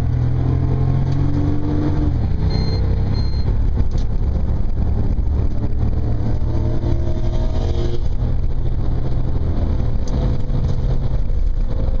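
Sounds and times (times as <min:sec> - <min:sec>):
car engine droning: 0:00.0 - 0:12.0
road noise: 0:00.0 - 0:12.0.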